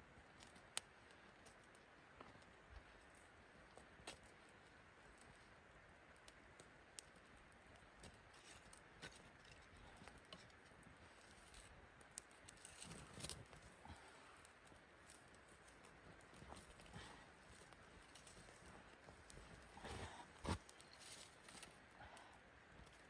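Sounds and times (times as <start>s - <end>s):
faint ticks and clicks: 0.2s - 23.0s
soft rustle: 8.0s - 22.2s.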